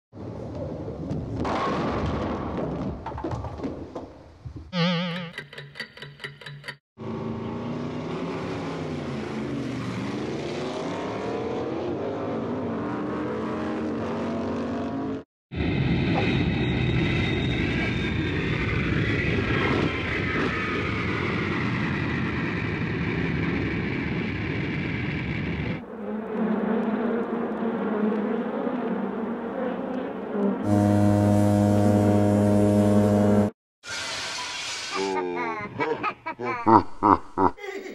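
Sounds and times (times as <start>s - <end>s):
engine roar with falling whine: 7.0s - 33.5s
engine pitch dipping and rising: 23.6s - 33.5s.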